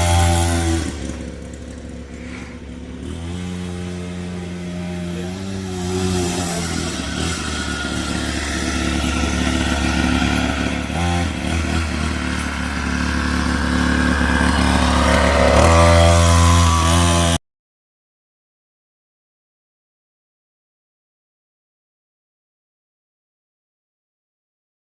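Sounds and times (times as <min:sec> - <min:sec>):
pit bike engine running: 0:00.0 - 0:17.4.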